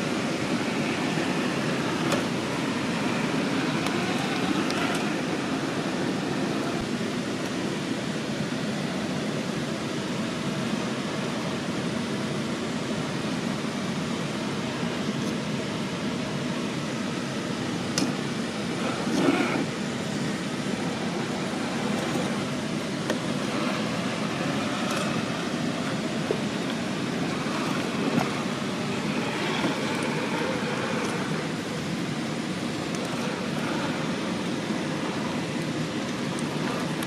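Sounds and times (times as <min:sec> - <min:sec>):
electric motor whirring: 0:00.5 - 0:06.9, 0:20.4 - 0:37.0.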